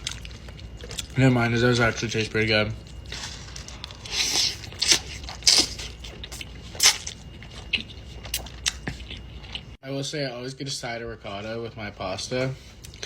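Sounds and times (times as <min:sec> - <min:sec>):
wet chewing: 0:00.0 - 0:01.4, 0:02.8 - 0:09.8.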